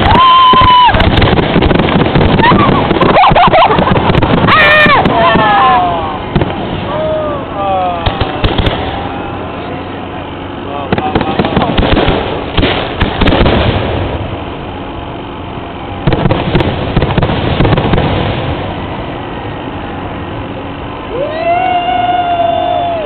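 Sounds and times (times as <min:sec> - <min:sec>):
fireworks bangs and crackling: 0:00.0 - 0:09.2, 0:10.8 - 0:14.6, 0:16.0 - 0:19.6
low rumble: 0:00.0 - 0:23.0.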